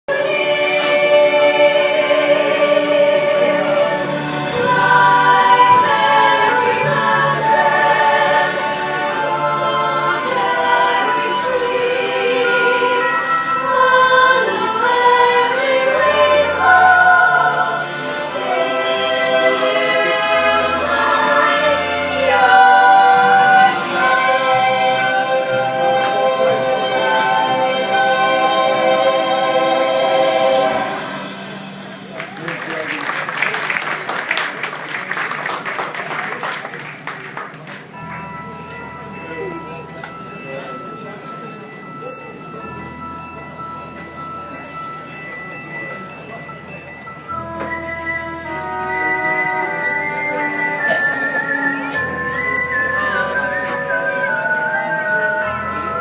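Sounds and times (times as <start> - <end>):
choir singing slow chords: 0.1 - 32.0.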